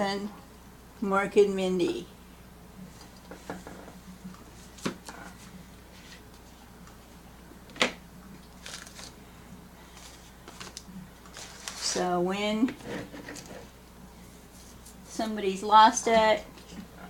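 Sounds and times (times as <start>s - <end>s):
packaging rustling: 8.5s - 9.2s, 9.9s - 12.0s.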